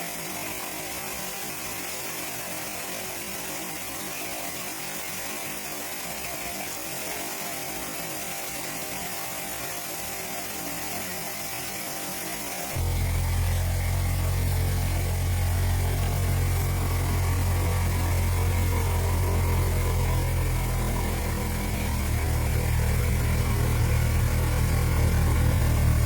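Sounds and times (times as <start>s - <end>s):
waterfall rushing: 12.7s - 26.0s.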